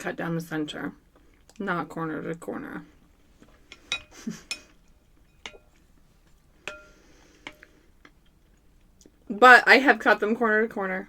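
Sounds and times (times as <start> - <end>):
spoon clinking against bowl: 3.9 - 5.8, 6.6 - 7.6.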